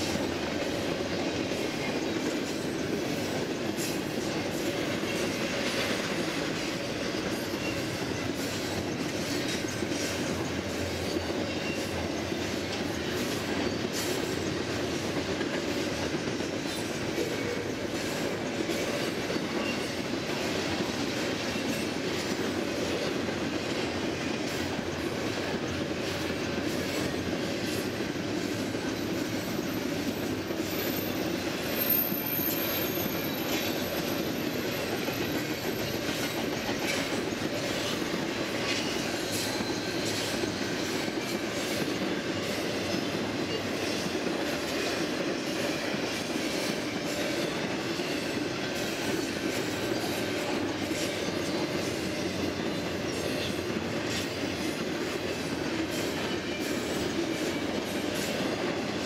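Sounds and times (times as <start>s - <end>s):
steel wheels rumbling on rail: 0.0s - 59.0s.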